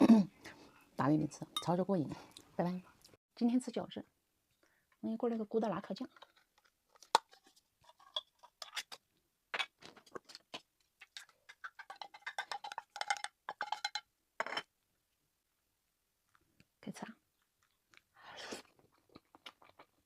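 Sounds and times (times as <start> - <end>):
tableware clicking and tapping: 11.5 - 14.7.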